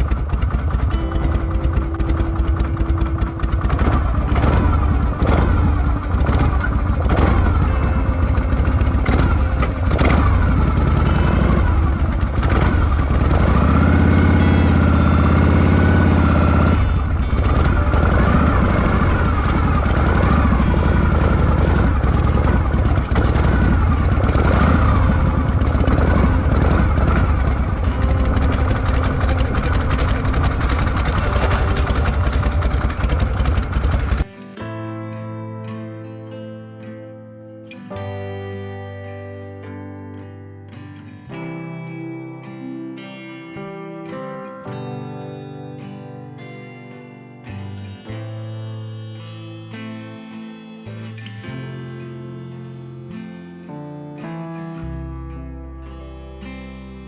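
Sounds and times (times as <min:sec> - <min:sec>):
motorcycle engine revving: 0:00.0 - 0:34.3.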